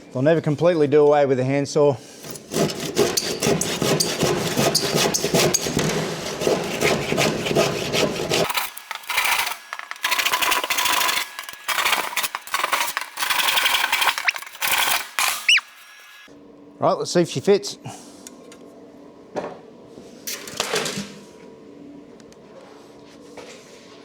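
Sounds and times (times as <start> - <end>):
handsaw cutting timber: 2.2 - 16.2.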